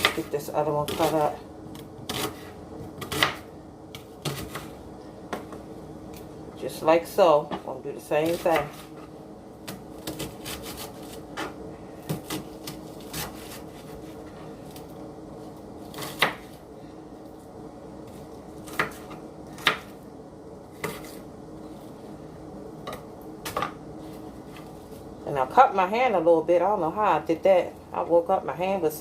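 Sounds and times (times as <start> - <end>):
knife chopping onion: 0.0 - 4.7, 8.1 - 9.0, 9.6 - 14.2, 15.8 - 16.6, 18.1 - 20.0, 20.7 - 21.2.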